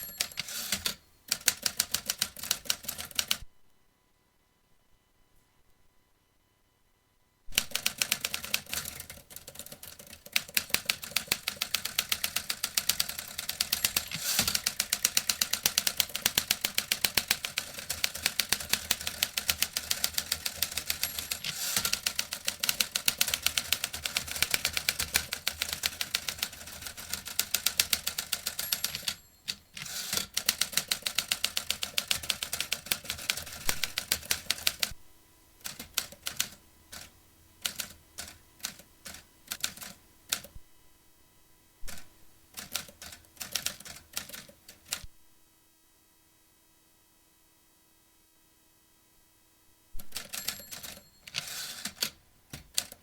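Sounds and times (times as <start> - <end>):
typewriter keys typing: 0.0 - 3.4, 7.6 - 34.9, 35.6 - 40.5, 42.6 - 45.0, 50.0 - 53.0.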